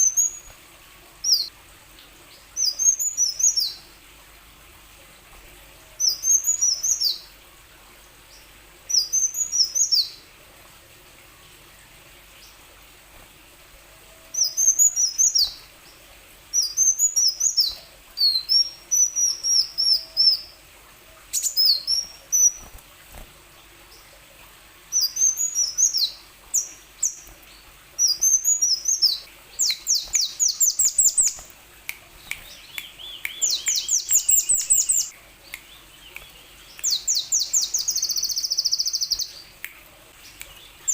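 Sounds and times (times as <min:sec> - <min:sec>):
bird singing high chirps: 0:00.0 - 0:00.5, 0:08.9 - 0:10.2, 0:14.4 - 0:15.7, 0:24.9 - 0:27.2, 0:28.0 - 0:31.5, 0:32.3 - 0:35.1, 0:35.7 - 0:39.5.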